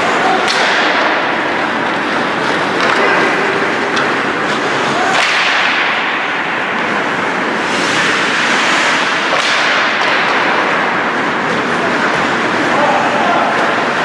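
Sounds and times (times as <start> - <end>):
stick striking puck: 0.0 - 7.0, 7.6 - 10.9
rink noise: 0.0 - 14.0
skates hissing on ice: 6.8 - 10.8.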